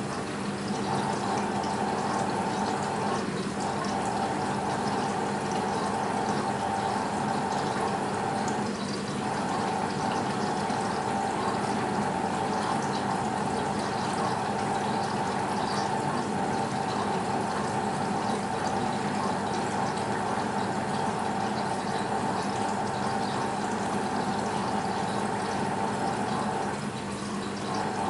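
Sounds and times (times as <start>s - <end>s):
washing machine hum: 0.0s - 28.0s
water running through washing machine: 0.0s - 28.0s.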